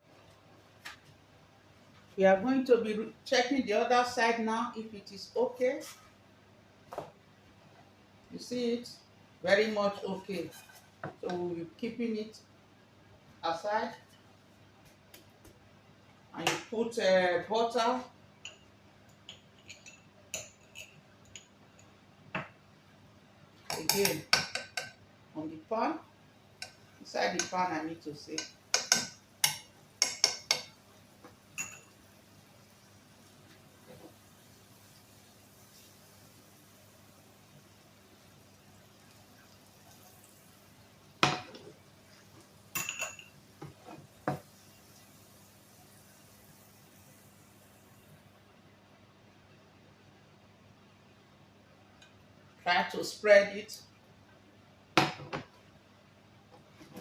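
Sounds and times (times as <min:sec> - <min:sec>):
utensil tapping a pan: 0:28.4 - 0:31.8.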